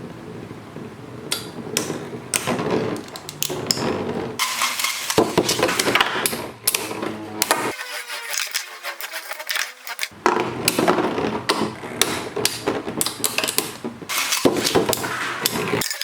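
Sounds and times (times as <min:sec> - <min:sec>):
spinning tops clashing: 0:07.6 - 0:10.1.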